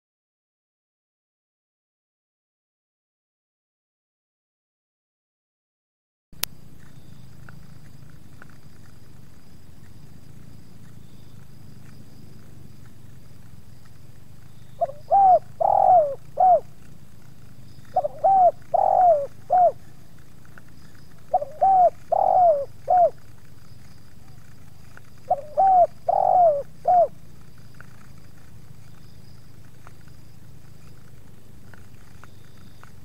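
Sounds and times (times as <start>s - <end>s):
steady low hum: 6.4s - 33.0s
dove cooing: 14.4s - 33.0s.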